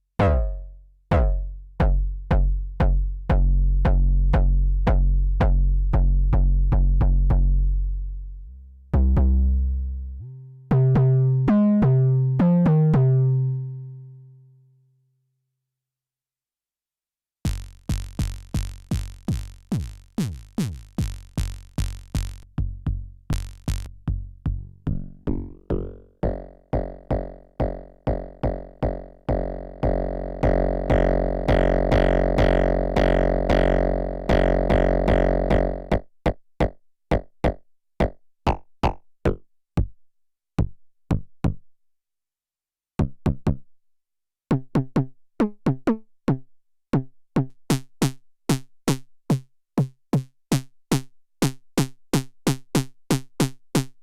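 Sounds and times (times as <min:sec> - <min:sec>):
synthesized kick drum hits: 0:00.2 - 0:07.5, 0:17.5 - 0:36.0.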